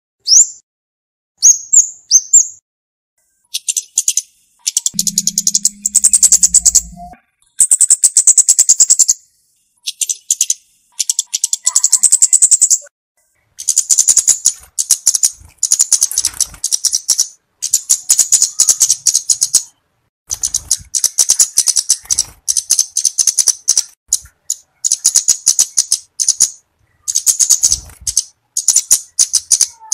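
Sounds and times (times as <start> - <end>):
bird calling sharp ticking notes: 3.5 - 9.1, 9.9 - 12.9, 20.4 - 29.9.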